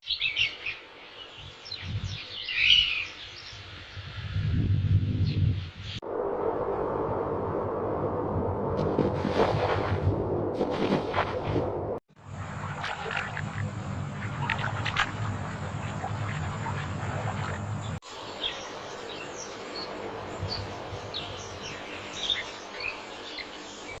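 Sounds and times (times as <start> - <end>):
low steady hum: 6.1 - 23.1.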